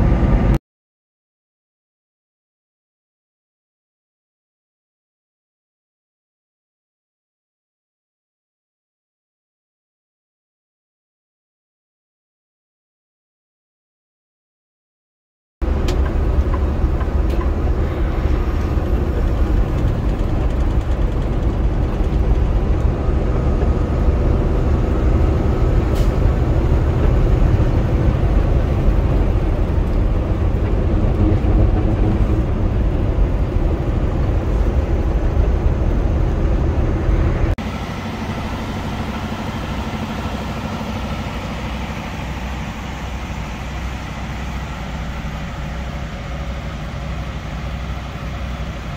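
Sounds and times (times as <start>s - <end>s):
road noise: 0.0s - 0.6s, 15.6s - 48.9s
truck engine drone: 0.0s - 0.6s, 15.6s - 48.9s.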